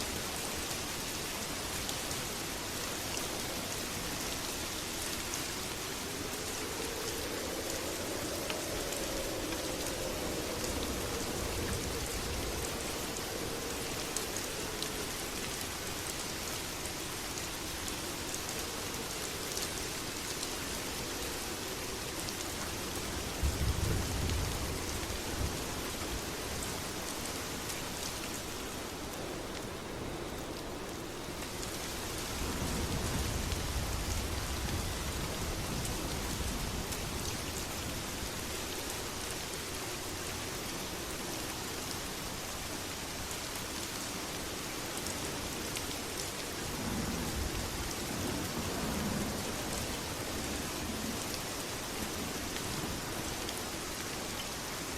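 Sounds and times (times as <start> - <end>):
heavy rain: 0.0 - 54.9
thunder rumbles: 4.6 - 15.9.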